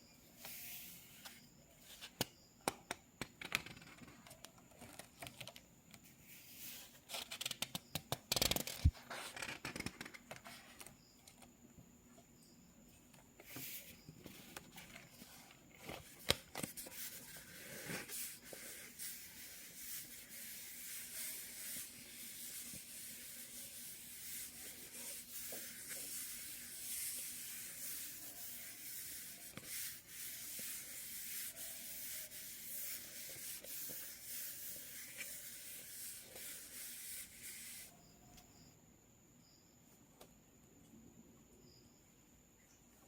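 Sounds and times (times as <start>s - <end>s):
pencil sketching on paper: 16.8s - 37.9s.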